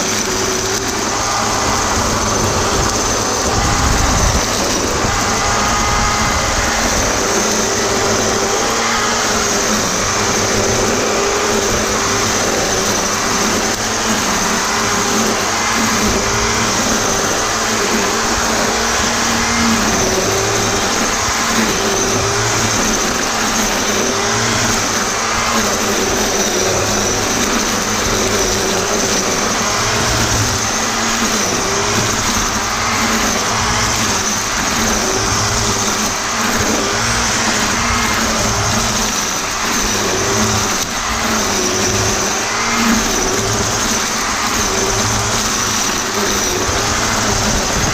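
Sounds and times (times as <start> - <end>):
electric string trimmer whining: 0.0 - 47.9
trimmer line hissing: 0.0 - 47.9.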